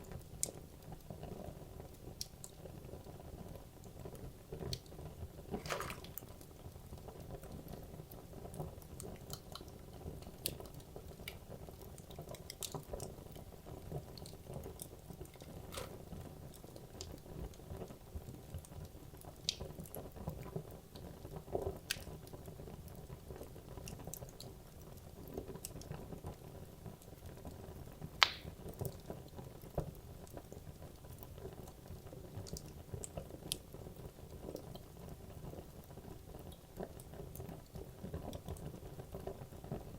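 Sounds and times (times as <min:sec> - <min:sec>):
fire crackles and pops: 0:00.0 - 0:39.9.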